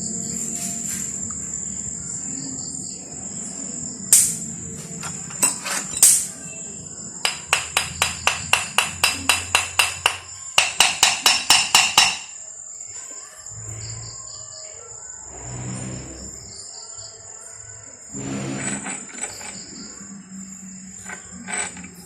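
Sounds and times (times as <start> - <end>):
crickets chirping: 0.0 - 22.0
hammer tapping metal: 7.2 - 12.4.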